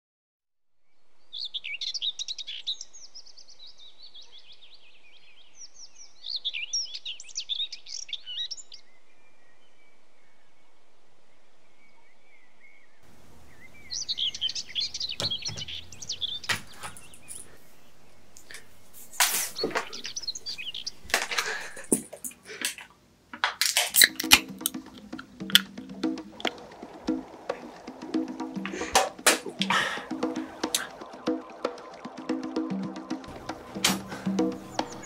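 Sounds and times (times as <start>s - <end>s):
songbirds chirping and singing: 11.8s - 21.9s, 33.3s - 35.0s
steady hiss: 13.0s - 31.2s.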